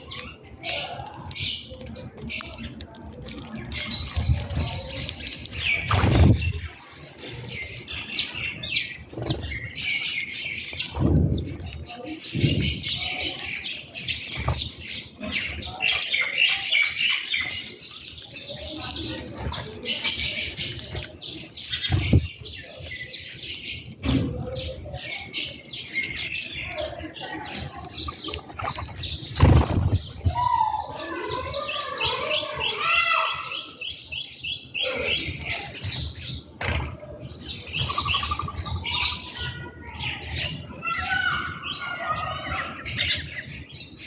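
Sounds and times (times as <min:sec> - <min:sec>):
sparrows chirping rapidly: 0:00.0 - 0:44.0
wing flap thumps: 0:05.8 - 0:06.6, 0:28.7 - 0:30.4.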